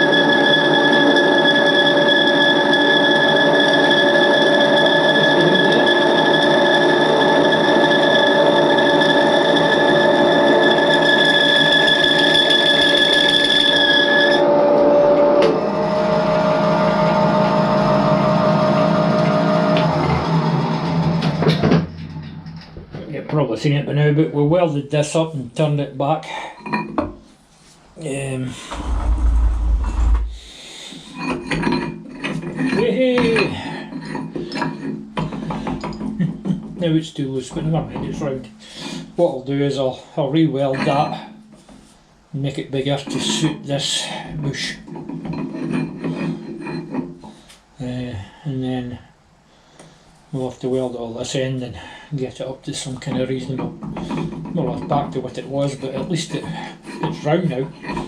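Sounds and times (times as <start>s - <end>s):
metal lathe whining: 0.0s - 22.6s, 28.6s - 30.4s
low thud-like rumble: 28.7s - 30.5s.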